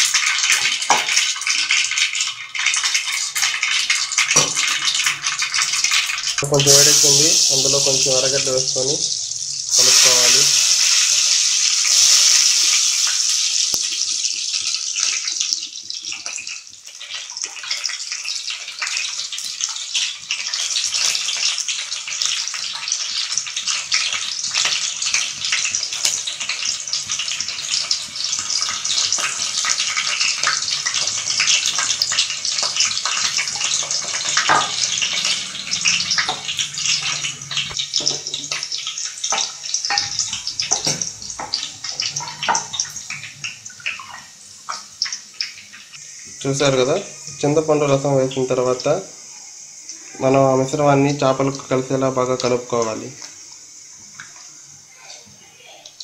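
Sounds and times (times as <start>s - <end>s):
onion sizzling in hot oil: 0.0s - 56.0s.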